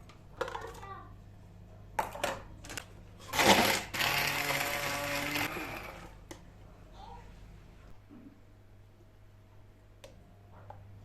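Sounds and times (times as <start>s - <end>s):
small electric motor running: 3.6s - 6.0s.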